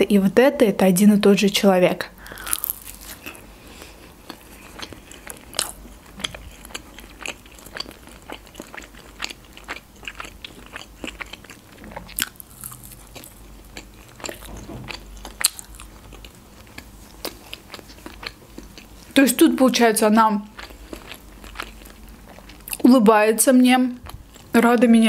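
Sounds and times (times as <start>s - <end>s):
chewing crunchy nuggets: 2.2s - 19.2s, 20.4s - 22.9s.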